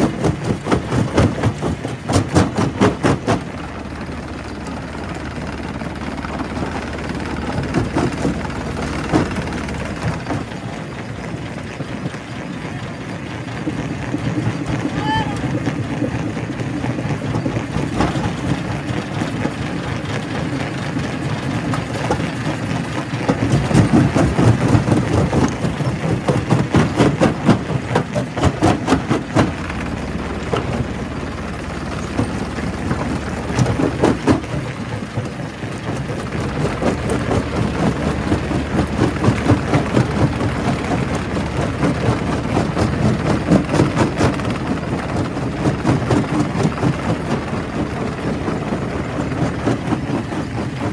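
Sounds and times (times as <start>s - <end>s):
heavy engine drone: 0.0s - 12.8s, 13.5s - 50.9s
rocks cracking in crusher: 0.0s - 50.9s.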